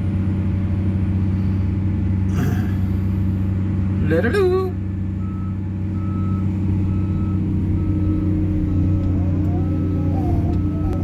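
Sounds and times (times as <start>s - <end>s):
diesel machinery running: 0.0s - 11.0s
reversing alarm beeping: 5.2s - 11.0s.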